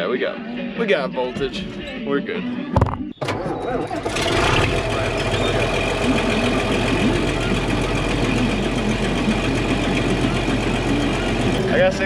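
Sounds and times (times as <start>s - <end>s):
tractor engine idling: 3.3s - 12.0s.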